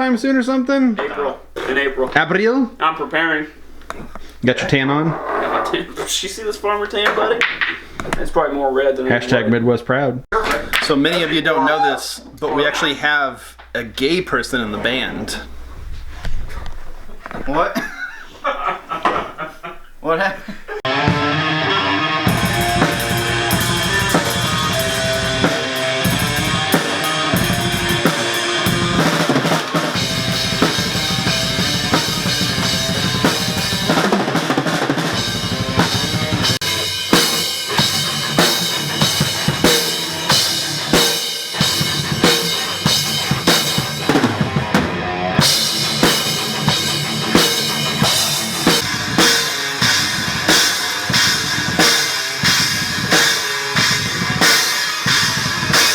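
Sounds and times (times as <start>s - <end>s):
drum kit beat: 20.8s - 55.9s
loud rock music: 20.8s - 55.9s.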